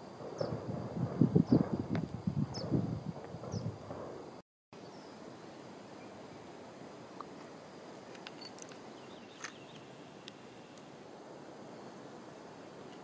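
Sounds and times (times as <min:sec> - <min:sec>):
soft outdoor hiss: 0:00.0 - 0:13.0
small bird chirps: 0:08.4 - 0:09.9.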